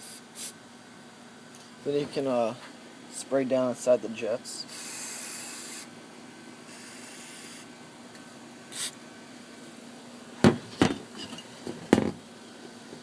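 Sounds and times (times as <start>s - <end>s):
aerosol spray hissing: 0.0s - 0.6s, 4.7s - 5.9s, 6.7s - 7.7s, 8.7s - 9.0s.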